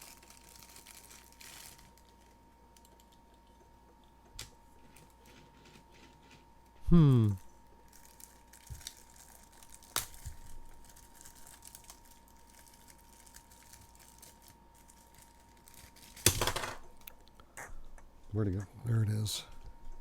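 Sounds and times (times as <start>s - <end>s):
plastic packaging crinkling: 0.0s - 2.4s, 7.9s - 16.6s.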